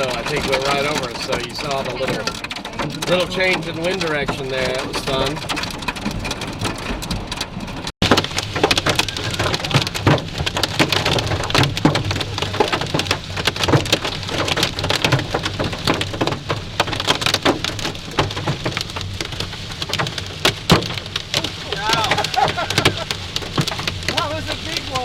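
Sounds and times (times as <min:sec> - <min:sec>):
car rumble: 0:00.0 - 0:25.0
rain and hail on car roof: 0:00.0 - 0:25.0.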